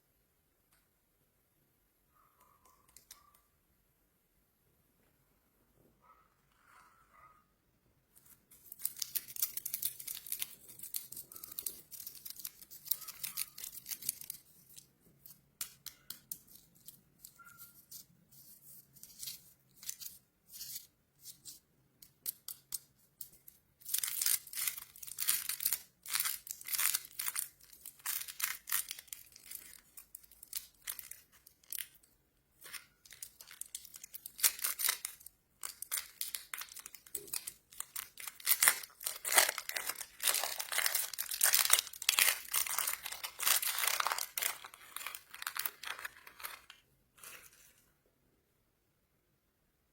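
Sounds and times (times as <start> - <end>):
plastic wrappers crinkling: 8.2 - 20.8, 21.5 - 47.7.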